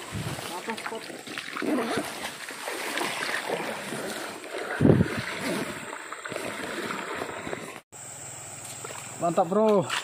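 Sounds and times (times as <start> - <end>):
flowing river water: 0.0 - 7.8
wind on microphone: 4.6 - 5.9.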